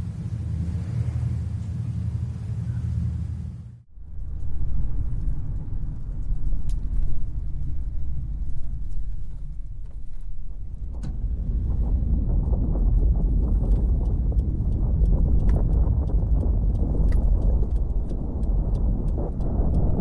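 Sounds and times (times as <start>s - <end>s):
deep earthquake rumble: 0.0s - 20.0s
sharp clicks: 13.6s - 20.0s.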